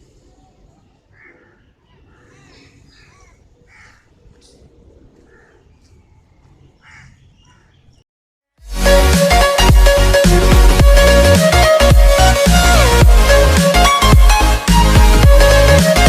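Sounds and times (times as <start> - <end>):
light bird chirps: 0.0 - 8.0
short harsh bird calls: 6.8 - 8.0.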